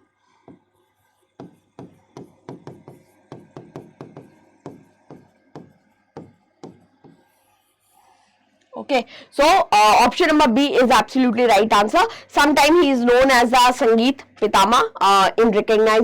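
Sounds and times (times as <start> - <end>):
light irregular tapping: 1.4 - 7.3.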